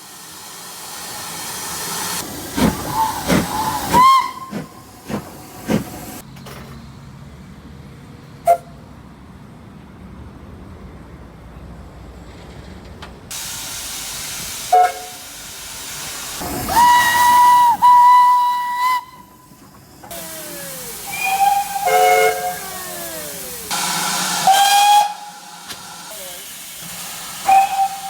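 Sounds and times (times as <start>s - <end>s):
hiss of escaping steam: 0.0s - 6.2s, 13.3s - 28.0s
steam locomotive whistle: 2.9s - 4.8s, 14.6s - 15.3s, 16.7s - 19.5s, 20.1s - 26.5s, 27.3s - 28.0s.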